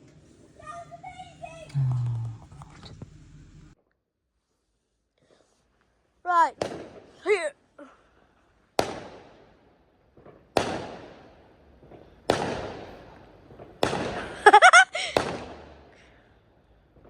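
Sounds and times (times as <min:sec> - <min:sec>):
person crying out: 0:01.7 - 0:02.4
fireworks exploding: 0:06.5 - 0:07.4, 0:08.8 - 0:16.2.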